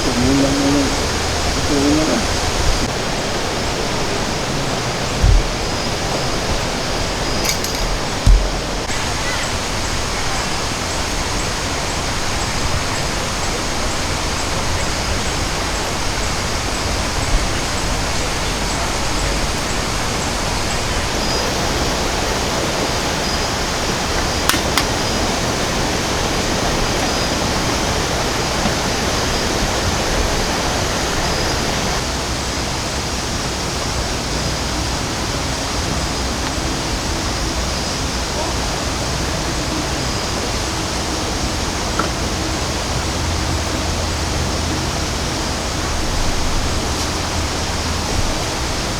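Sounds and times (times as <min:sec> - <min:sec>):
water rushing: 0:00.0 - 0:48.9.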